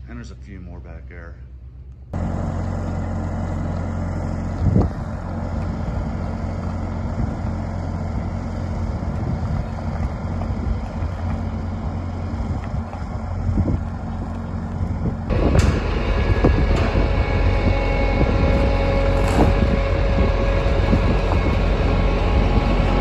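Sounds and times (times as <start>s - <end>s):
engine running steadily: 0.0s - 23.0s
low thump: 15.3s - 21.5s.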